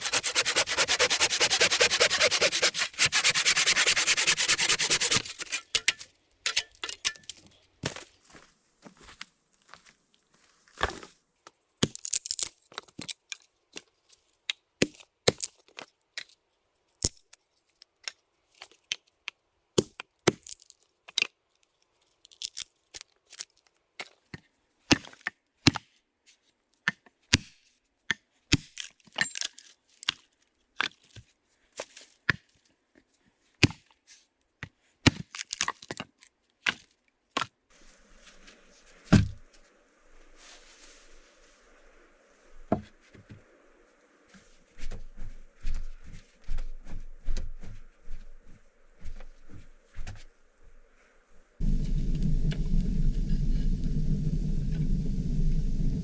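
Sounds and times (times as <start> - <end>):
hand saw cutting wood: 0.0 - 5.9.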